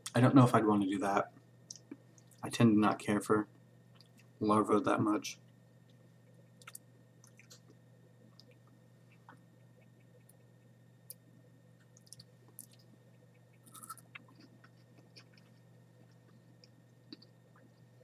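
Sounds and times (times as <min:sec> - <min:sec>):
faint chewing clicks: 0:01.4 - 0:02.4, 0:03.9 - 0:04.4, 0:05.4 - 0:18.0.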